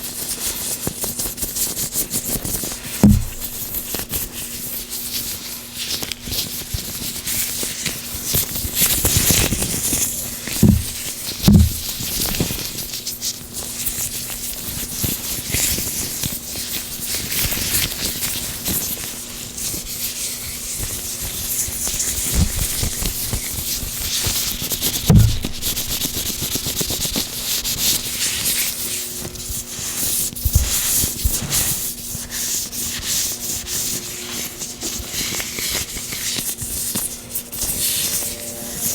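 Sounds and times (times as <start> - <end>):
low thumps: 3.0 - 3.9, 10.6 - 12.0, 25.1 - 26.1.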